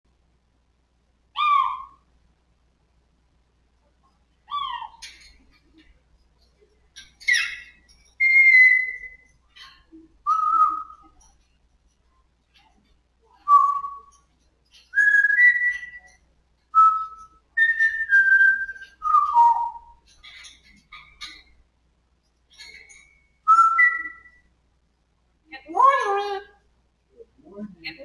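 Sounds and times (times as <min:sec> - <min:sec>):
parrot whistling notes: 0:08.2 - 0:09.3, 0:23.4 - 0:24.4.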